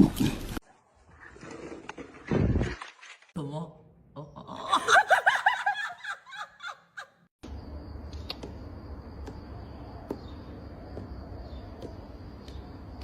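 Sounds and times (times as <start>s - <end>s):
person laughing: 4.2s - 7.2s.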